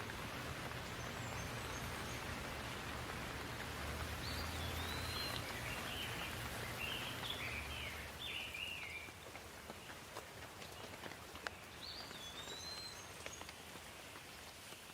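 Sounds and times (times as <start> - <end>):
steady rain: 0.0 - 14.9
water drips: 0.0 - 14.9
bird chirping: 4.2 - 9.1, 11.7 - 13.5.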